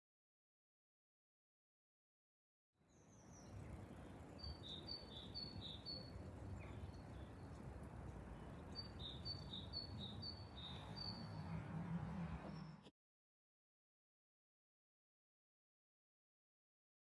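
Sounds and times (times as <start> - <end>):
songbird chirping: 2.8 - 12.9.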